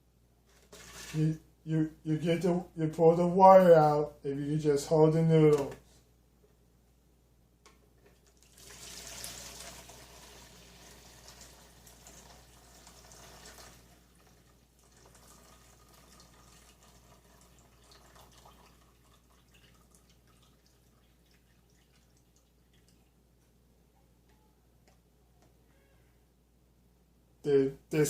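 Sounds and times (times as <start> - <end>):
water pouring into a bowl: 8.3 - 23.1
water trickling and dripping: 10.8 - 23.2.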